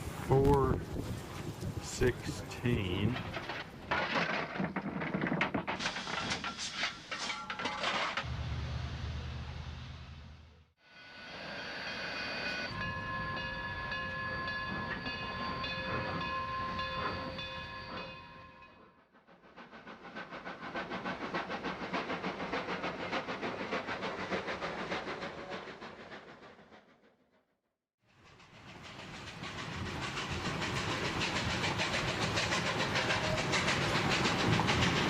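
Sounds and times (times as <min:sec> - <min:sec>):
train rhythmic beat: 0:01.8 - 0:03.2, 0:28.6 - 0:35.0.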